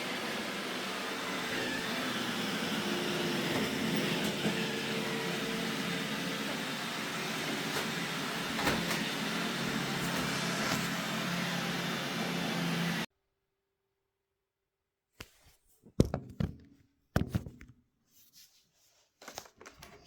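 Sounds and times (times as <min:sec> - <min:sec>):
robot vacuum whirring: 0:00.0 - 0:13.1.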